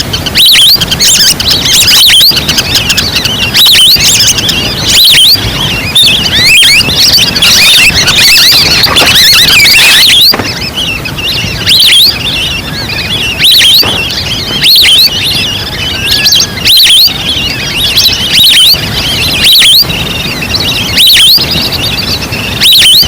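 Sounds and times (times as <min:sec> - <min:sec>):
whistled duck calls: 0:00.0 - 0:23.0.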